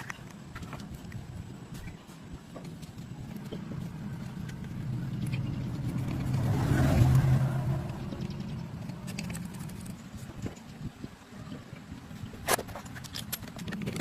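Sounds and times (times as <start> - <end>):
car engine running: 3.1 - 10.3.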